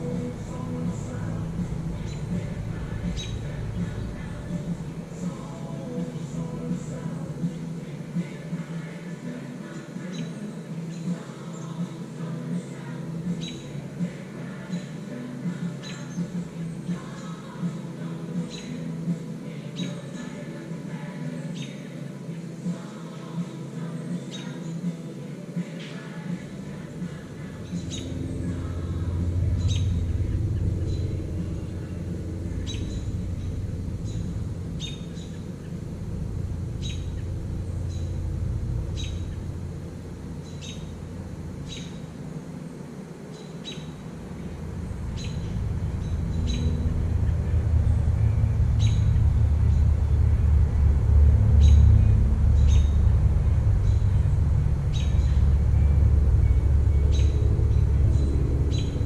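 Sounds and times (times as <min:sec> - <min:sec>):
low rumble: 0:00.0 - 0:09.0, 0:26.6 - 0:59.0
bird chirping: 0:00.0 - 0:15.1, 0:26.7 - 0:42.3, 0:43.3 - 0:59.0.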